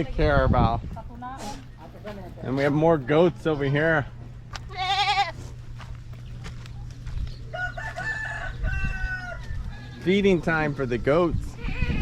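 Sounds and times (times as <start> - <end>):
goat bleating: 4.5 - 5.6, 11.5 - 12.0
rooster crowing: 7.5 - 10.1.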